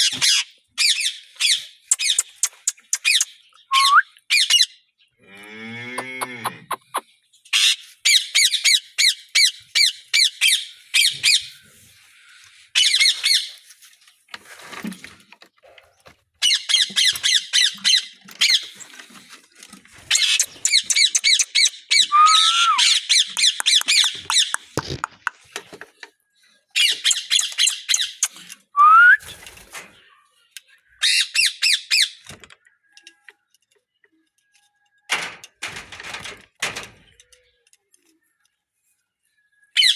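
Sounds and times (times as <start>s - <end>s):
short rising whistles: 3.7s - 4.2s, 22.1s - 23.0s
parrots squawking: 6.0s - 7.0s, 20.1s - 25.3s.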